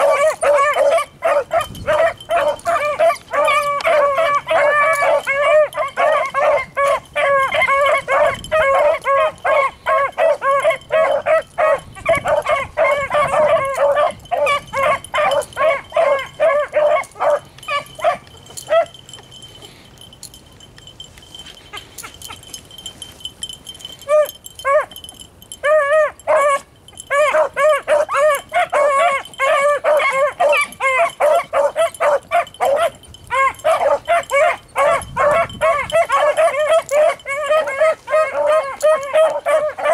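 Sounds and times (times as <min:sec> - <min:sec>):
dogs baying: 0:00.0 - 0:39.9.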